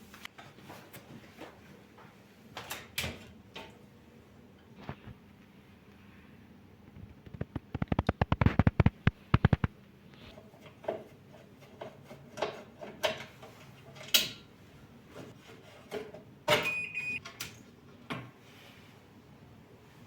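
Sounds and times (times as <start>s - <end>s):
knocks and clicks: 7.2s - 9.7s
fast sharp clicks: 7.3s - 9.7s
short electronic beep: 16.7s - 17.2s.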